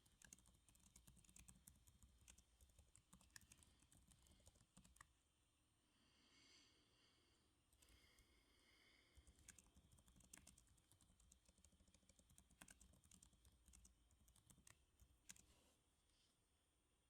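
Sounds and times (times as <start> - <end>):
soft keyboard typing: 0.0 - 5.2, 7.7 - 8.4, 9.0 - 15.7.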